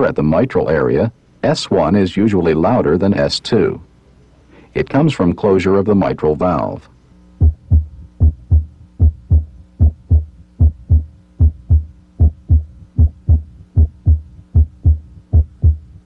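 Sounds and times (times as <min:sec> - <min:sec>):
heartbeat through stethoscope: 0:07.4 - 0:16.0.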